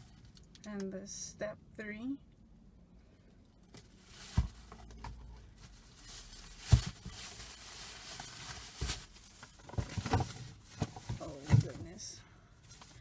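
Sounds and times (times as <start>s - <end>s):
packaging rustling: 3.8s - 11.8s.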